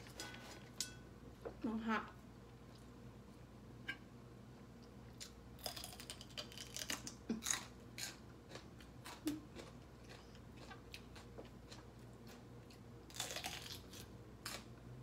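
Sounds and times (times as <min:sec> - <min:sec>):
crunchy chewing: 0:05.2 - 0:14.7.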